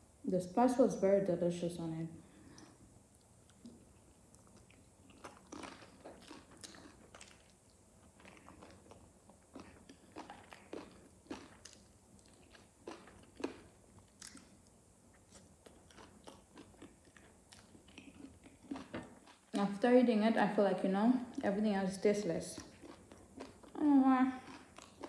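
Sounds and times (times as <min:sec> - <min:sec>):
person chewing: 0:02.4 - 0:19.6, 0:22.5 - 0:25.0.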